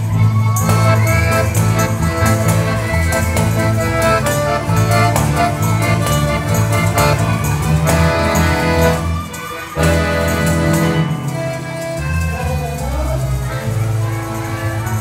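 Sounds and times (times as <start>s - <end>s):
accordion chords: 0.0s - 15.0s
acoustic guitar: 0.0s - 15.0s
hand percussion rhythm: 0.0s - 15.0s.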